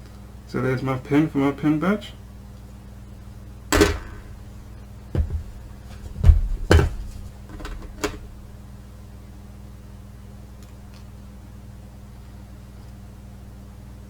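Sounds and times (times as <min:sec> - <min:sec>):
steady low hum: 0:03.7 - 0:08.6
hard objects knocking on surface: 0:03.8 - 0:04.6, 0:05.2 - 0:08.4.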